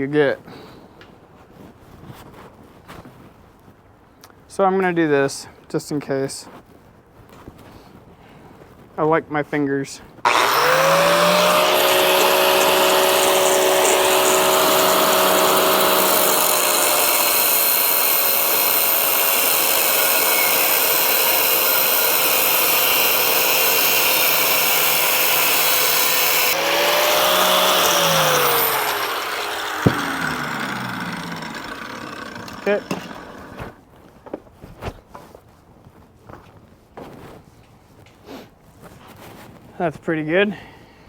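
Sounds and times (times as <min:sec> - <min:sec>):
angle grinder cutting steel: 0:10.3 - 0:33.8.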